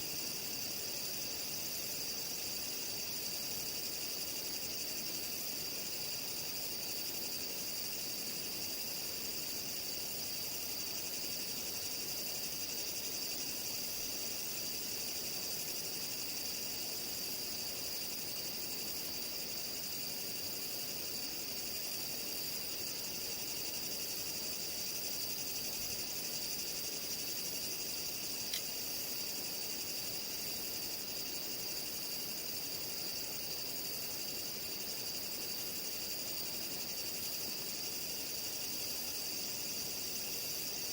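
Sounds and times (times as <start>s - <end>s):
crickets chirring: 0.0s - 40.9s
high pulsed insect chirp: 0.0s - 40.9s
faint click: 28.4s - 28.8s.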